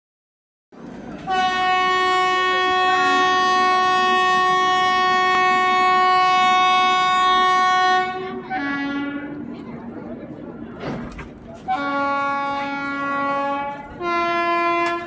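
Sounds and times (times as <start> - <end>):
train rumble: 0.8 - 15.0
train horn blast: 1.3 - 9.4, 11.7 - 15.0.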